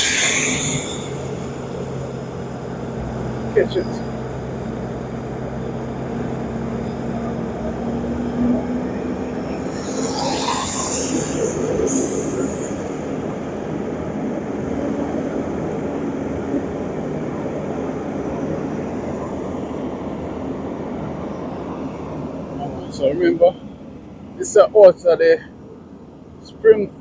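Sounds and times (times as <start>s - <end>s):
loud harsh hiss: 0.0s - 1.9s, 9.6s - 13.1s
heavy machinery engine drone: 0.0s - 24.4s.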